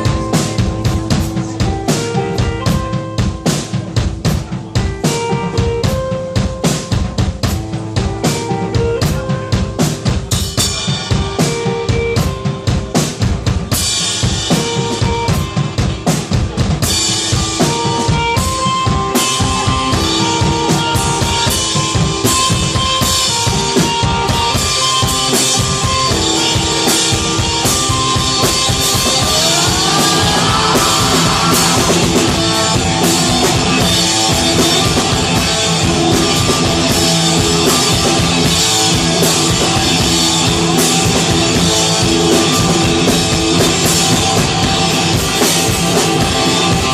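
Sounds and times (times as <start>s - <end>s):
drum kit pounding: 0.0s - 46.9s
rock band playing: 0.0s - 46.9s
rising guitar slide: 27.0s - 43.1s.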